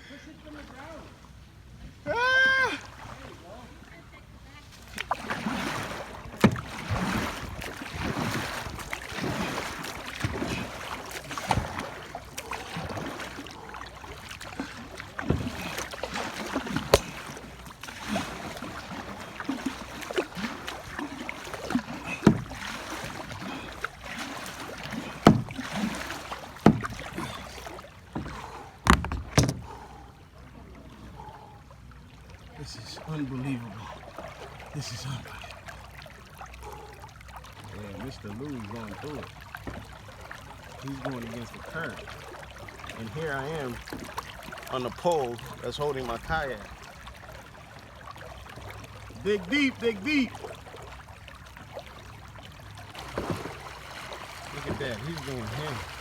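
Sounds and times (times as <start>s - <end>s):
paddle strokes splashing: 2.2s - 56.0s
rushing water: 4.6s - 56.0s
sharp knocks: 25.2s - 25.6s, 26.6s - 27.0s, 28.2s - 29.7s.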